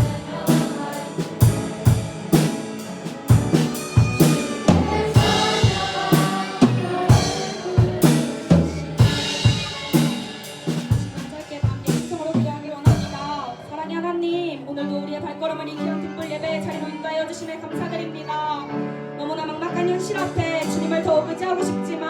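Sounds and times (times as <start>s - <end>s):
piano chords: 0.0s - 12.2s
drum kit playing steady beat: 0.0s - 13.7s.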